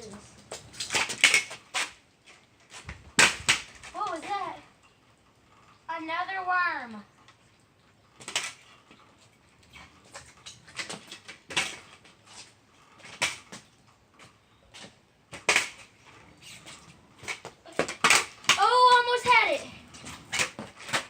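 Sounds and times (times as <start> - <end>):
kick scooter clattering on pavement: 0.0 - 5.0, 5.6 - 21.0.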